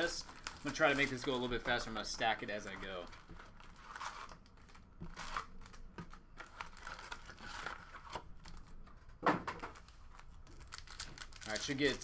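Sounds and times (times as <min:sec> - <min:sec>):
wrappers tearing and crinkling: 0:00.0 - 0:08.7, 0:09.7 - 0:12.0.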